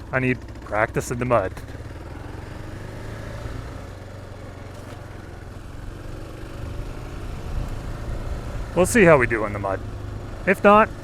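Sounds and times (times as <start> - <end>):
motorcycle engine running low revs: 0.0 - 11.0.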